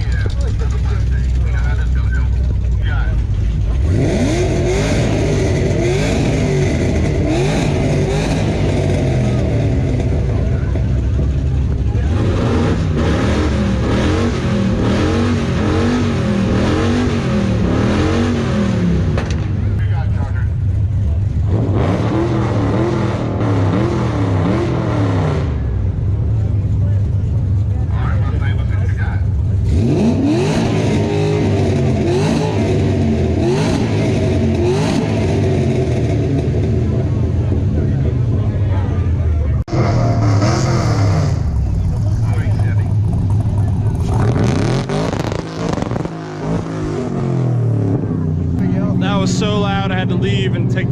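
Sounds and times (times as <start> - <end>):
car engine revving loud exhaust: 0.0 - 50.9
person speaking: 48.6 - 50.9.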